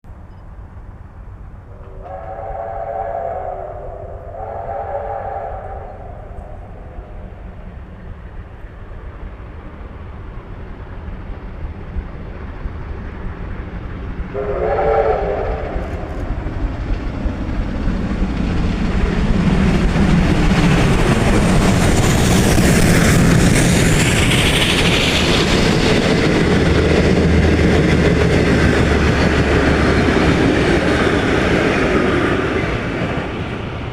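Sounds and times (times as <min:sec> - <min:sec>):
steam train passing: 0:00.1 - 0:33.9
steam locomotive chime whistle: 0:01.7 - 0:07.2, 0:14.3 - 0:16.1.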